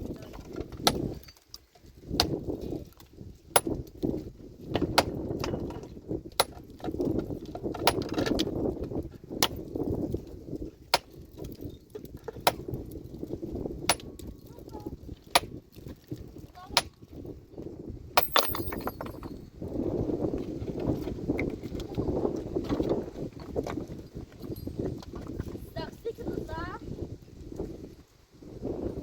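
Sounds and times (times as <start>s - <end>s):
pickaxe striking rock: 0.8s - 1.2s, 2.1s - 2.4s, 3.6s - 3.8s, 4.9s - 5.6s, 6.4s - 6.6s, 9.3s - 9.7s, 10.9s - 11.2s, 12.3s - 12.7s, 13.9s - 14.2s, 18.2s - 19.3s.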